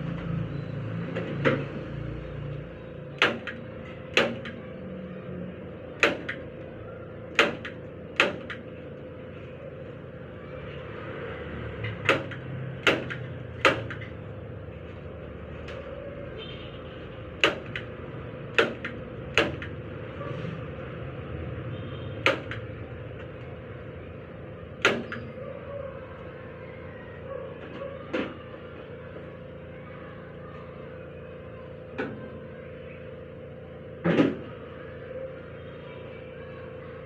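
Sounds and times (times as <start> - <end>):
sharp knocks and clicks: 3.2 - 4.6, 6.0 - 6.4, 7.3 - 8.7, 11.8 - 14.2, 17.4 - 17.9, 18.5 - 19.8, 22.2 - 23.4, 24.8 - 25.3.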